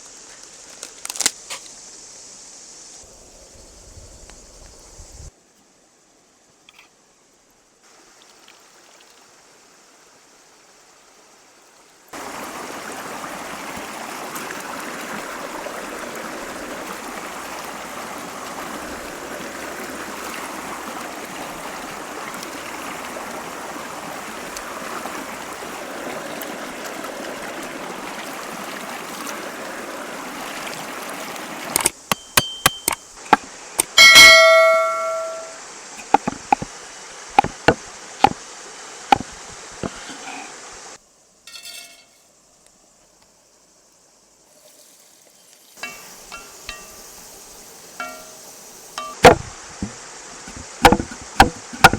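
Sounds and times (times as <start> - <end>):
struck metal object ringing: 32.1 - 33.0, 33.8 - 36.4, 41.5 - 42.2, 45.8 - 47.0, 48.0 - 48.4, 49.0 - 50.0
sharp knocks: 32.1 - 36.7, 37.4 - 38.4, 39.1 - 40.0, 49.0 - 51.9.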